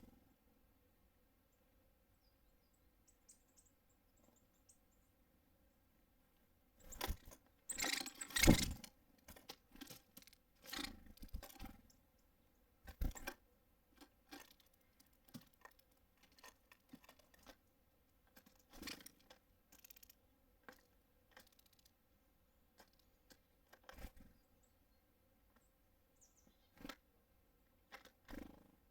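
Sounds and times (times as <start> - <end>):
beaks and claws tapping on feeder: 6.8 - 12.0, 12.8 - 22.0, 22.7 - 24.2.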